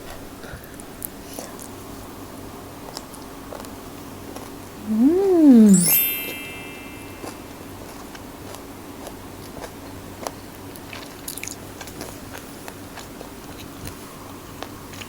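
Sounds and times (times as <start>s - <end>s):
chewing food: 10.9s - 13.7s.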